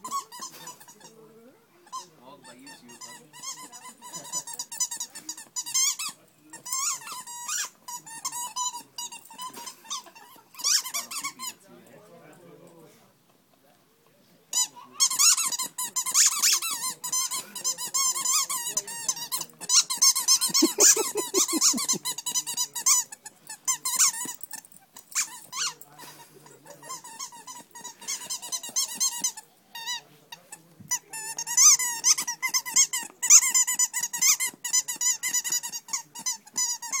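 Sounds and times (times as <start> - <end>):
squeaky toy squeaking: 0.0 - 11.6, 14.5 - 37.0
dog growling: 20.4 - 22.1.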